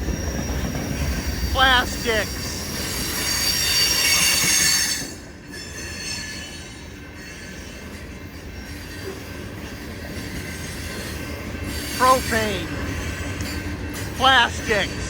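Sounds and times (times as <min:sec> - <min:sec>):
wheel squeal: 0:02.3 - 0:07.8.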